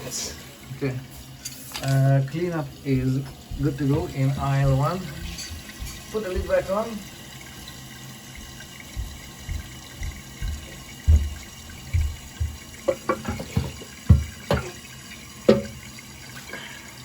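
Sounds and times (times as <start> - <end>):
faint hiss of water: 0.0 - 17.0
ceramic lid clunks and knocks: 12.9 - 14.8, 15.5 - 15.8
ceramic lid thuds: 12.9 - 14.8, 15.5 - 15.8.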